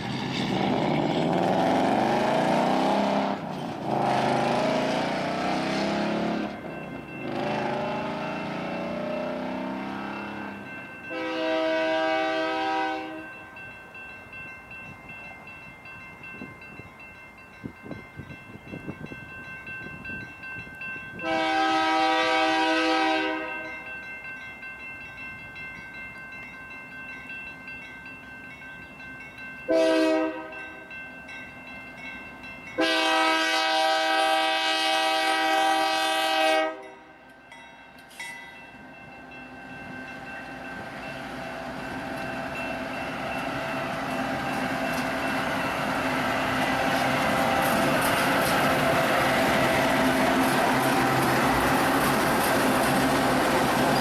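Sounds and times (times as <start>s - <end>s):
train rumbling: 0.0s - 54.0s
locomotive air horn blasts: 11.1s - 13.3s, 21.2s - 23.7s, 29.7s - 30.6s, 32.8s - 37.1s.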